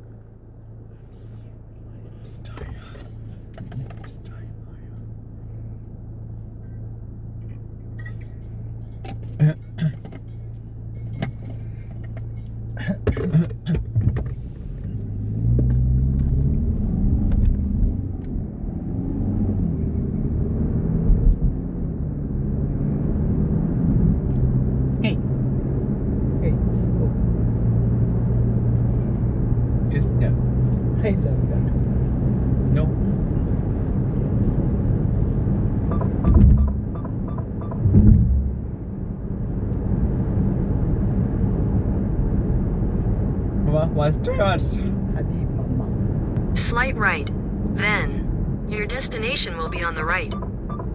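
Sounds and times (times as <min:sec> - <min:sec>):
car engine and road noise: 0:00.0 - 0:50.9
short beeps: 0:35.8 - 0:38.7, 0:49.1 - 0:50.9.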